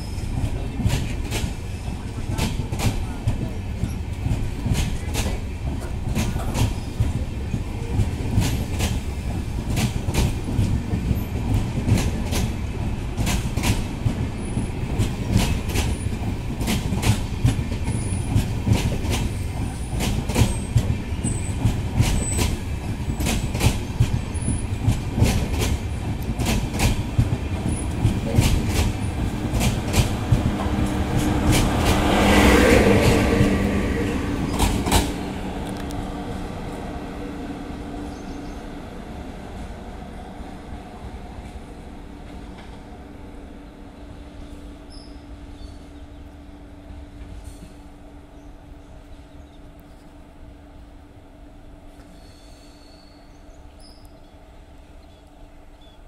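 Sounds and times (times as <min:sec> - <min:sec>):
train wheels clicking over rail joints: 0:00.0 - 0:36.0
faint wheel squeals: 0:52.1 - 0:54.2.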